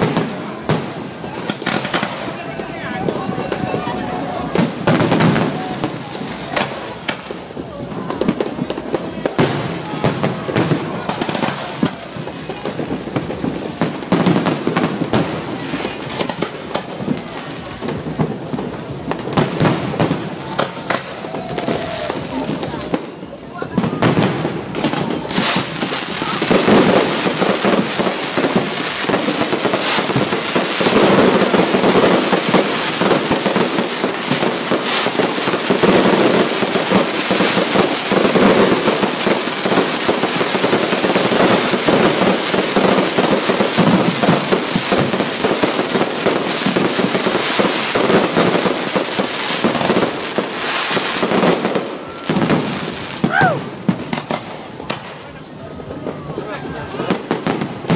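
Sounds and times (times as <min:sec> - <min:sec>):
fireworks popping and crackling: 0:00.0 - 0:57.9.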